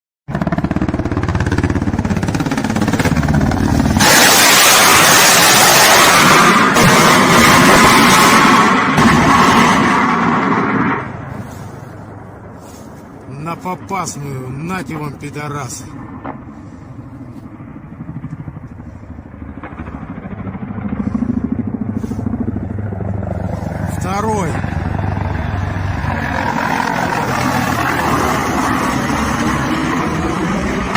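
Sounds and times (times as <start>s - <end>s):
helicopter rotors pulsing: 0.3s - 30.9s
loud steady rushing noise: 0.3s - 30.9s.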